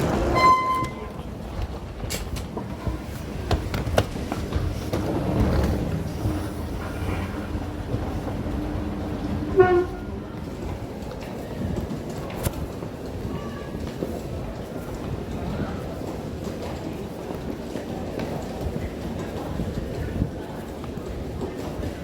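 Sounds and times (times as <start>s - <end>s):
short pitched tone: 0.3s - 1.2s.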